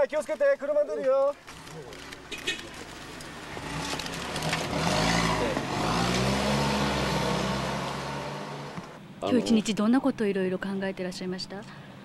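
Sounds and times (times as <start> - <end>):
car engine revving: 3.6 - 9.0.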